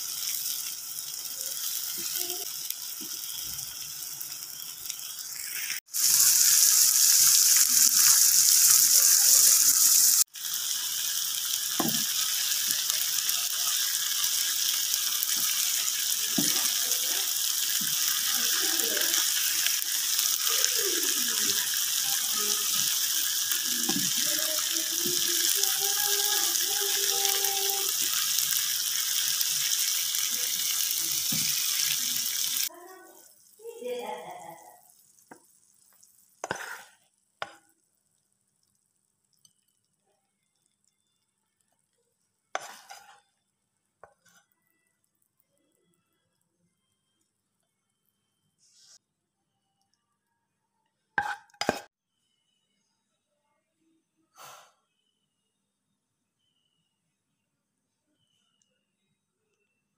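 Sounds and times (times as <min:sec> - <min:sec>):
fish in sauce sizzling and bubbling: 0:00.0 - 0:49.0
spatula stirring and scraping: 0:34.9 - 0:46.2, 0:51.2 - 0:51.9.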